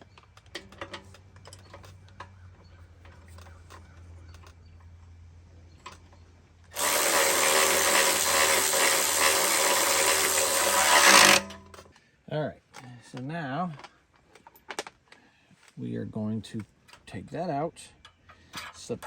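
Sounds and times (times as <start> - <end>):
faint clicks and knocks of parts: 0.0 - 15.8, 17.9 - 19.0
power drill running: 6.7 - 11.7.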